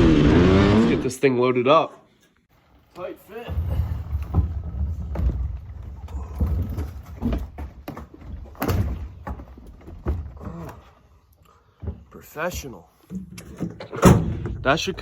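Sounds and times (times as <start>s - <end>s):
dirt bike knocking and thumping: 3.5s - 10.6s.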